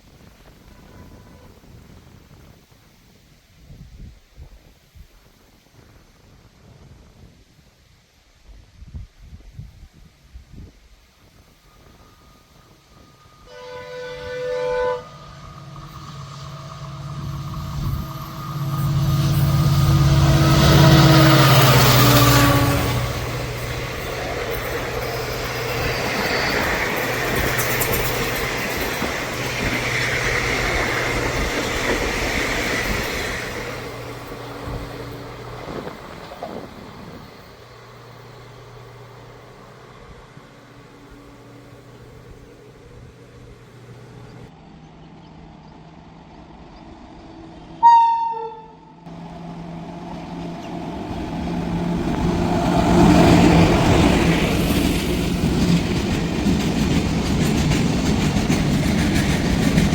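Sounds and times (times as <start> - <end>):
train horn blast: 0.4 - 2.0, 11.7 - 24.1, 47.8 - 49.2
locomotive engine: 11.8 - 47.9, 48.6 - 59.9
train wheels clattering on rails: 15.8 - 39.7, 50.2 - 59.9.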